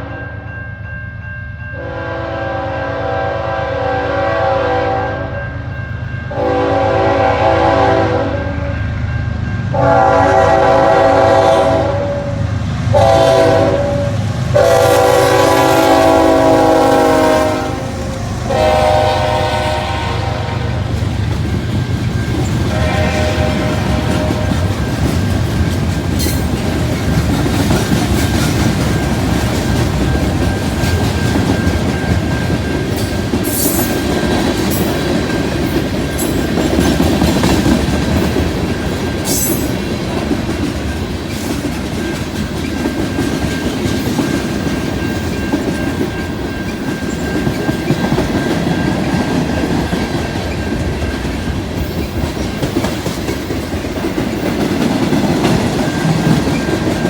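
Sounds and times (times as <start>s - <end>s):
freight train wheels rumbling: 0.0s - 57.0s
wheels clacking over rail joints: 20.7s - 57.0s.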